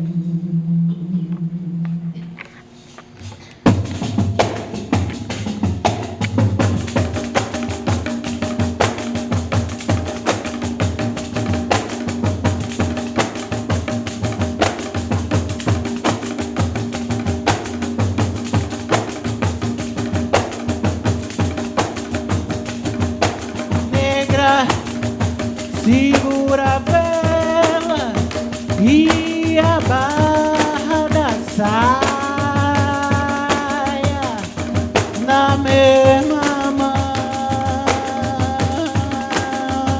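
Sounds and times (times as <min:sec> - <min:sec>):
sustained pitched tones: 0:00.0 - 0:02.6
pandeiro ensemble groove: 0:02.0 - 0:39.9
person singing: 0:35.2 - 0:39.9.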